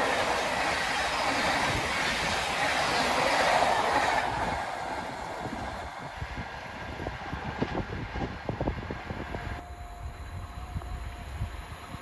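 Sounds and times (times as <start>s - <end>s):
train coaches rushing past: 0.0s - 9.6s
quiet rail rumble: 0.0s - 12.0s.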